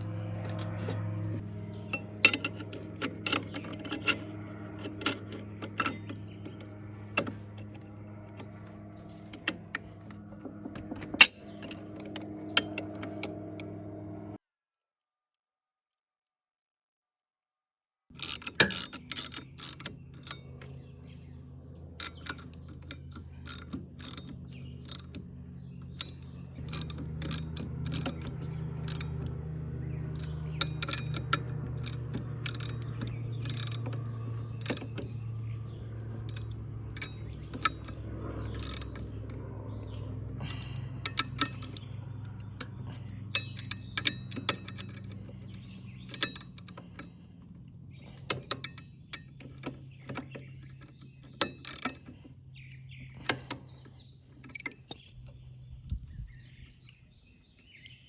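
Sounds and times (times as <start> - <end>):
steady low hum: 0.0 - 14.4, 18.9 - 57.2
hand tools clinking on metal: 1.8 - 13.8, 21.9 - 52.4.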